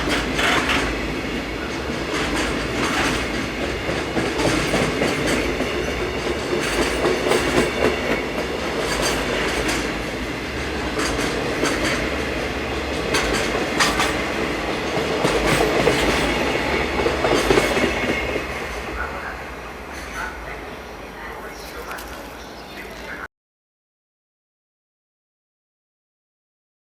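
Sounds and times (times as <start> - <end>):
freight train wheels clacking: 0.0 - 20.5.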